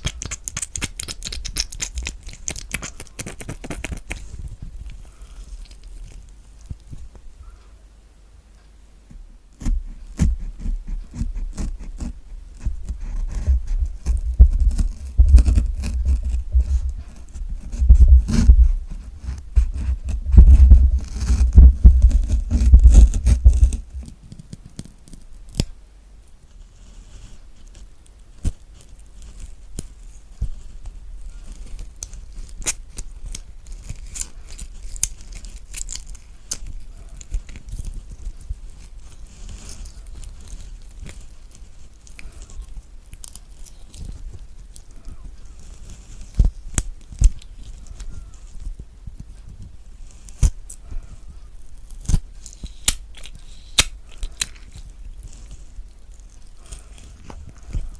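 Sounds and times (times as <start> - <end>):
knife cutting kiwi crackling: 51.8 - 57.9
spoon scraping kiwi flesh: 51.8 - 57.9.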